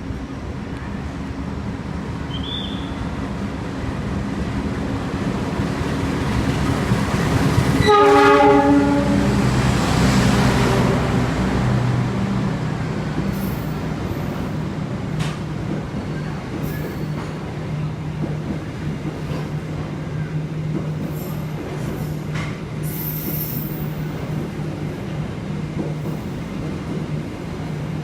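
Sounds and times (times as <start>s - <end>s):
train passing with rumble: 0.0s - 28.0s
locomotive horn blast: 7.8s - 9.5s.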